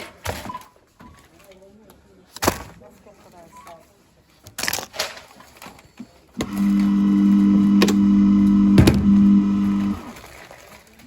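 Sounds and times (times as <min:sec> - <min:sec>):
electric hum: 0:06.4 - 0:10.2.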